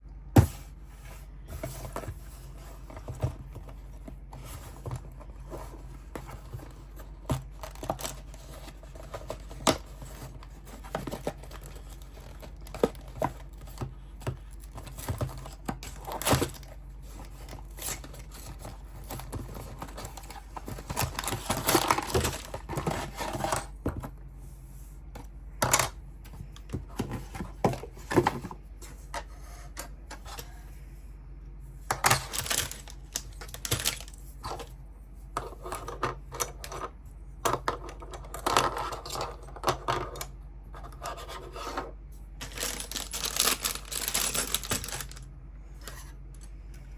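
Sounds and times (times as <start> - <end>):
packaging tearing and crinkling: 17.3 - 23.6, 32.1 - 34.2, 42.4 - 45.2.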